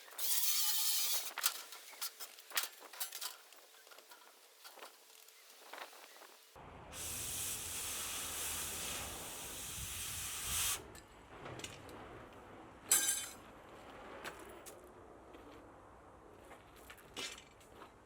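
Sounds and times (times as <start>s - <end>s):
steady hiss: 1.3s - 10.9s.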